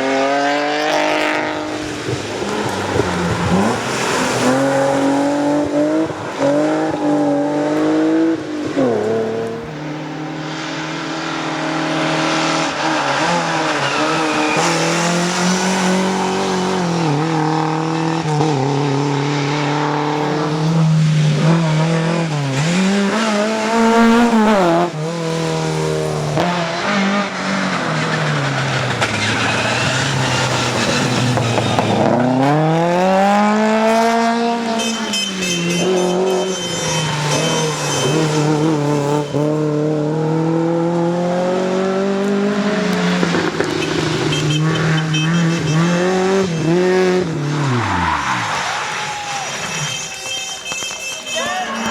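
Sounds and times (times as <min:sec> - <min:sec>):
rally car engine revving: 0:00.0 - 0:51.9.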